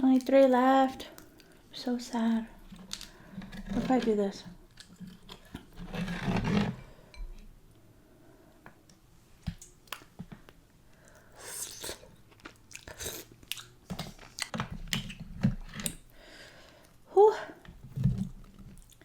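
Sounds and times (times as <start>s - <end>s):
chewing and wet mouth sounds: 0.1s - 1.8s, 9.6s - 15.2s, 18.5s - 19.0s.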